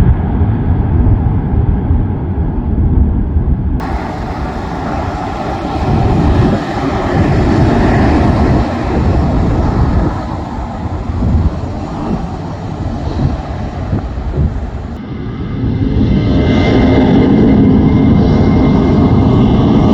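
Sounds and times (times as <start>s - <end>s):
jet engines rumbling: 3.8s - 15.0s.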